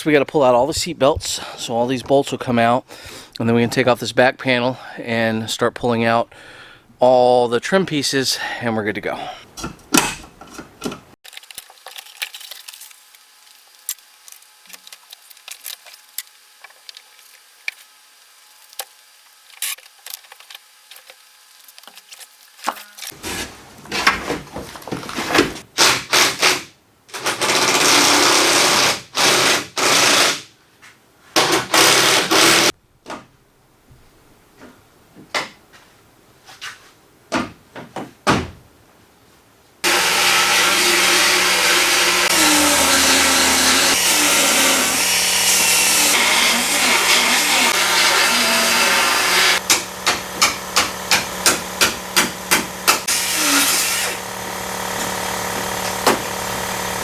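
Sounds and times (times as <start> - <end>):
power tool running: 27.2 - 30.4, 31.4 - 32.7, 39.8 - 57.0.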